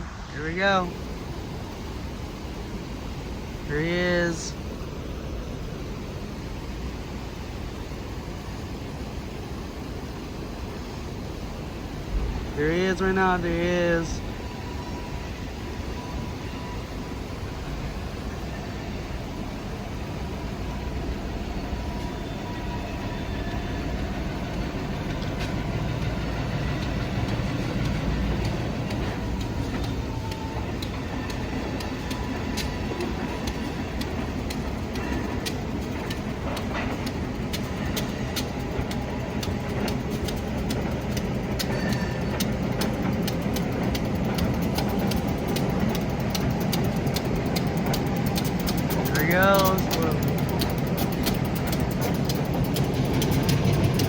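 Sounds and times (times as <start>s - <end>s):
diesel locomotive rumbling: 0.0s - 54.0s
sharp clicks: 24.4s - 54.0s.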